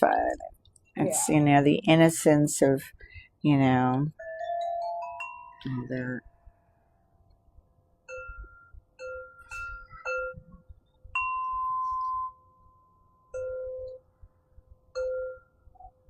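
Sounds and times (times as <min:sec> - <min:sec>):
crystal harp notes ringing: 0:04.2 - 0:06.2.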